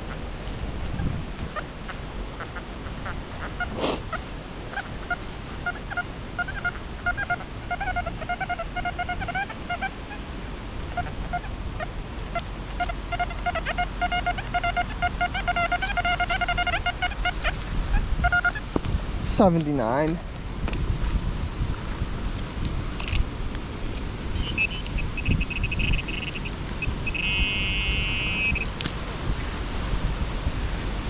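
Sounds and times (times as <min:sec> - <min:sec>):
wind buffeting microphone: 0:00.0 - 0:31.0
metal detector beeping: 0:24.4 - 0:28.7.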